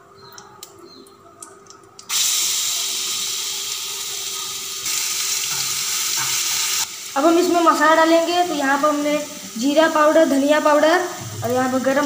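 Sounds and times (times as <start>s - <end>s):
paste sizzling in hot oil: 2.1s - 10.4s.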